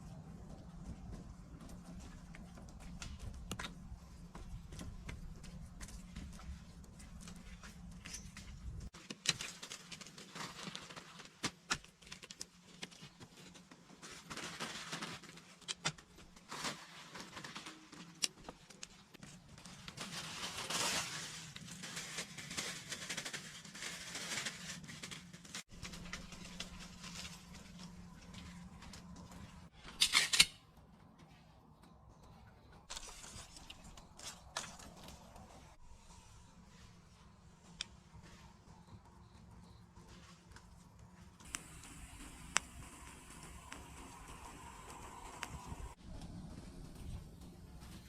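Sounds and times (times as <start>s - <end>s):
rustling of dry material: 0.0s - 30.0s, 30.8s - 48.0s.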